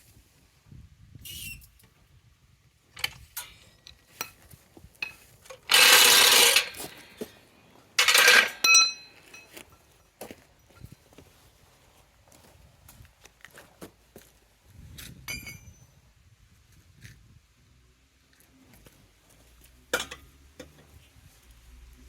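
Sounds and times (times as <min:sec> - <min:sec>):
metal tools clinking: 0:05.0 - 0:07.3, 0:08.0 - 0:11.0, 0:15.3 - 0:15.8
ringing metallic clink: 0:08.0 - 0:09.6, 0:15.3 - 0:15.9.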